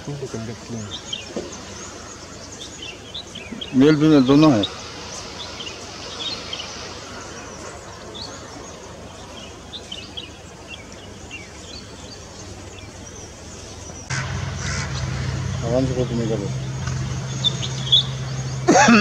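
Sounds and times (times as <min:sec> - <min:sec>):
outdoor background hiss: 0:00.0 - 0:19.0
high bird chirps: 0:11.8 - 0:19.0
loud steady low hum: 0:14.1 - 0:19.0.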